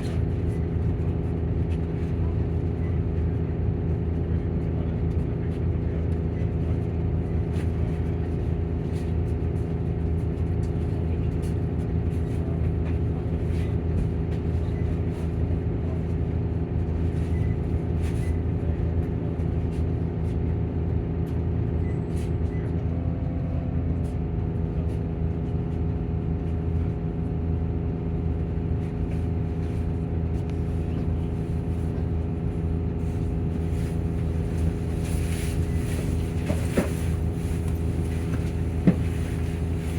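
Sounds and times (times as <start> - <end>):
coach engine low drone: 0.0 - 39.9
cooling fan hum: 24.5 - 39.9.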